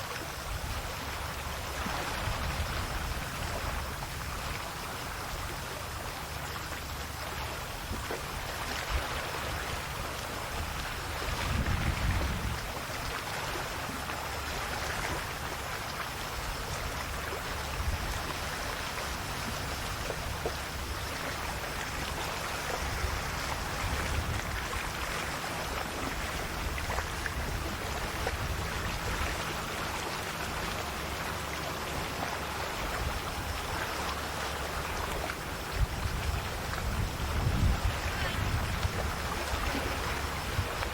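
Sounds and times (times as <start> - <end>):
small waves lapping: 0.0 - 40.9.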